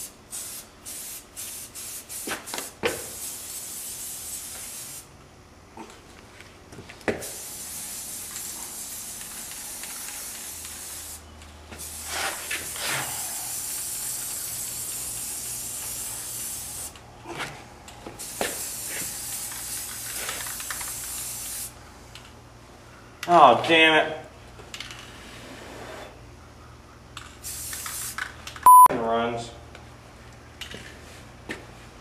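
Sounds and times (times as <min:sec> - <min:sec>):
spray can hissing: 0:07.2 - 0:11.2, 0:13.4 - 0:17.0, 0:18.2 - 0:21.7, 0:27.4 - 0:28.2.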